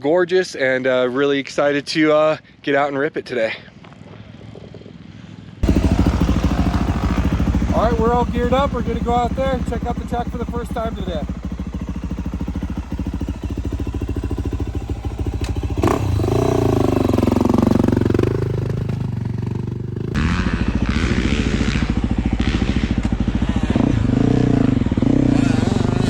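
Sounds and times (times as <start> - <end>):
motocross engine revving: 5.6 - 26.0.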